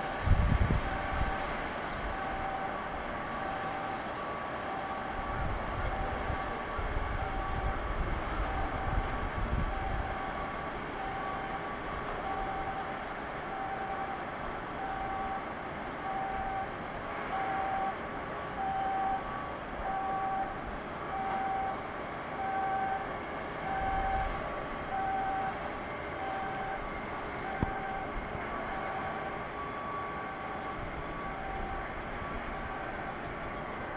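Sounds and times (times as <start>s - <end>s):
industrial background noise: 0.0s - 33.9s
electronic warning beeper: 17.3s - 18.0s, 18.6s - 20.5s, 23.7s - 25.6s.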